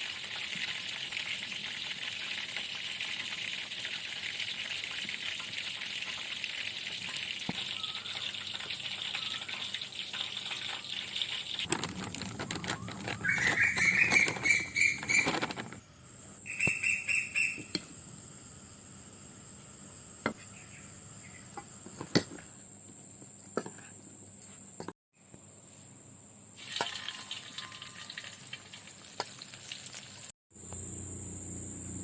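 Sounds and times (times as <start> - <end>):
food frying in hot oil: 0.0 - 11.7, 26.5 - 30.9
high chirps: 7.6 - 9.7, 12.6 - 15.4, 16.4 - 17.9.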